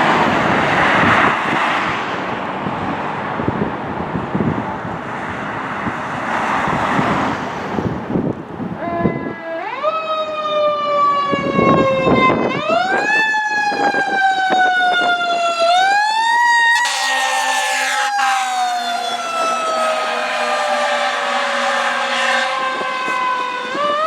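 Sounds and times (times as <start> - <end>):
fire engine siren wailing: 8.8 - 24.0.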